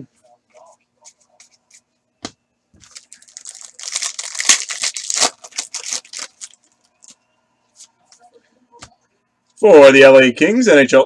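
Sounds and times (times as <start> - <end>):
foil wrapper tearing and crinkling: 2.8 - 6.7.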